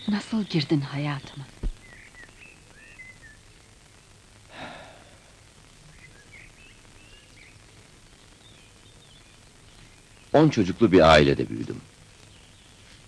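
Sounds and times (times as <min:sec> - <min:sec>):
birds chirping: 0:00.0 - 0:13.0
breathy sigh: 0:04.5 - 0:05.4.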